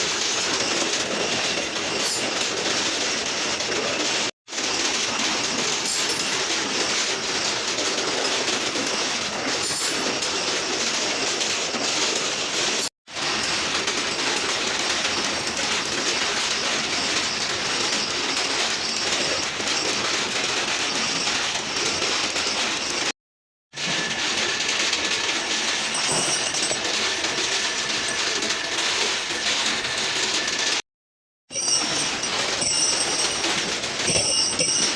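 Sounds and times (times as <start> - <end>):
mechanical clatter and rumble: 0.0 - 23.1, 23.8 - 30.8, 31.5 - 34.9.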